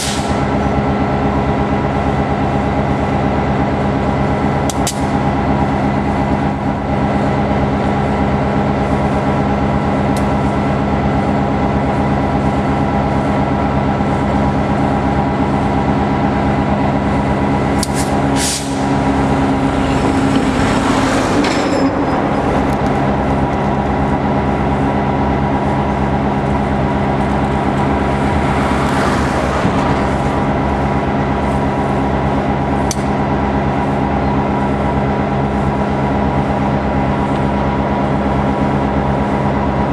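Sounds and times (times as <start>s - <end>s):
locomotive engine idling: 1.3s - 28.5s.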